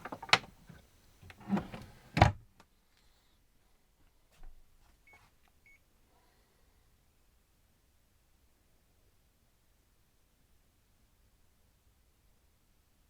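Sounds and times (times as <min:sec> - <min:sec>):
rustling handling noise: 0:00.0 - 0:02.2.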